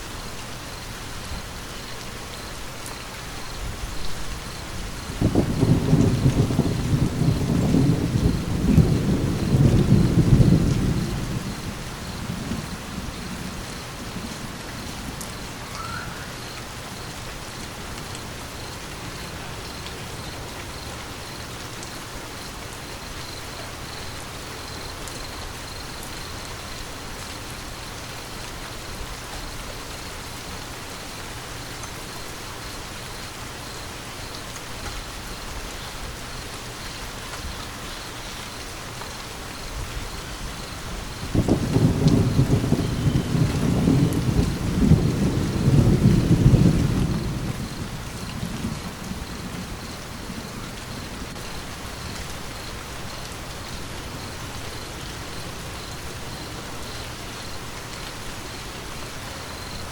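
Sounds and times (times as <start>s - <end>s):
rain falling: 0.0s - 59.9s
rolling thunder rumble: 3.6s - 17.0s, 39.8s - 53.0s.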